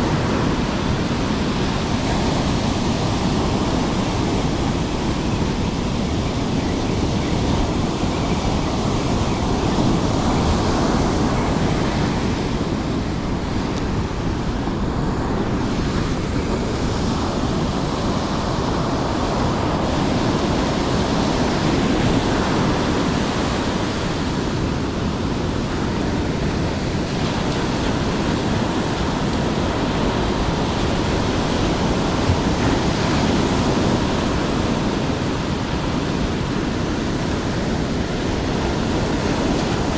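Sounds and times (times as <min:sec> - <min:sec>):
breaking surf: 0:00.0 - 0:39.9
wind rumbling on microphone: 0:00.0 - 0:39.9.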